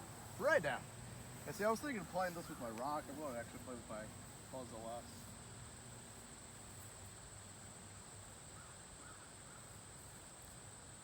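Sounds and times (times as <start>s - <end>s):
distant bird calls: 0.0s - 5.3s, 8.5s - 9.8s
faint high hiss: 0.0s - 11.0s.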